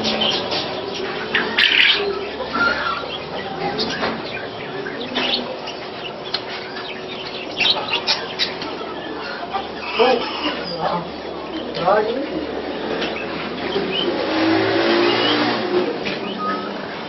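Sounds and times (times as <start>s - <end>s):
caged birds chirping: 0.0s - 17.0s.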